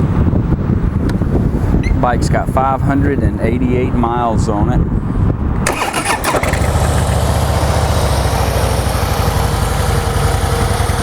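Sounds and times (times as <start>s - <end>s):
motorcycle engine idling: 5.8s - 11.0s.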